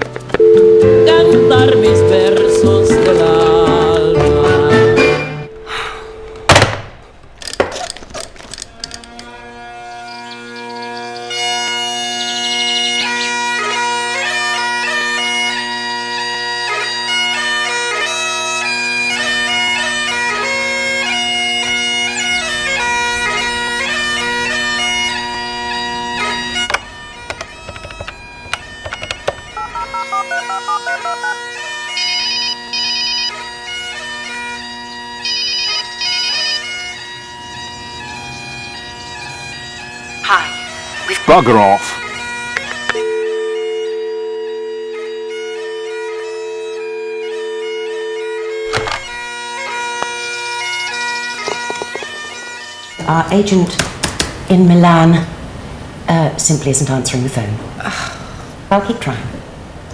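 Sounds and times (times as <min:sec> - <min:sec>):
bagpipes playing: 0:00.0 - 0:06.8, 0:08.5 - 0:53.6
telephone ringing: 0:00.1 - 0:06.6, 0:25.1 - 0:33.4, 0:35.3 - 0:36.6, 0:41.1 - 0:41.8, 0:42.5 - 0:49.9.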